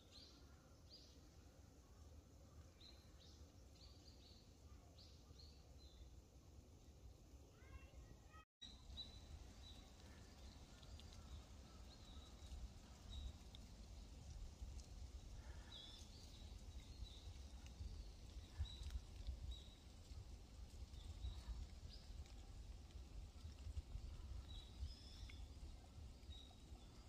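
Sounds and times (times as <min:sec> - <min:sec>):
small bird chirping: 0:08.6 - 0:13.6.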